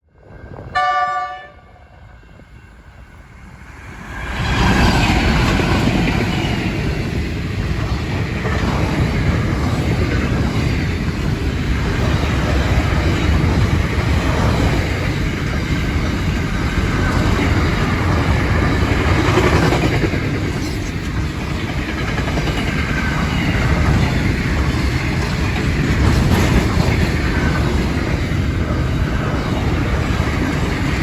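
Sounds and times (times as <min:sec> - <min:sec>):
freight train passing rumble: 0:00.0 - 0:31.0
locomotive horn blast: 0:00.7 - 0:02.1.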